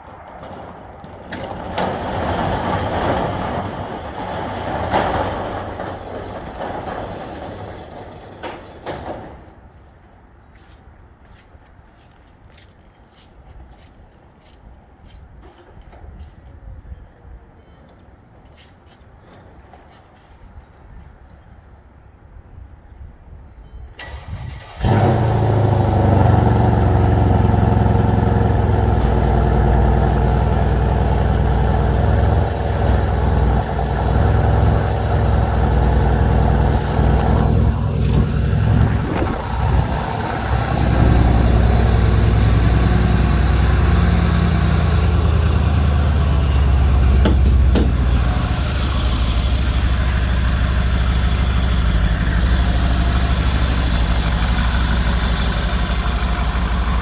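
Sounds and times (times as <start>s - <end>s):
engine cranking: 1.3s - 9.3s, 24.0s - 57.0s
car engine idling: 24.8s - 57.0s.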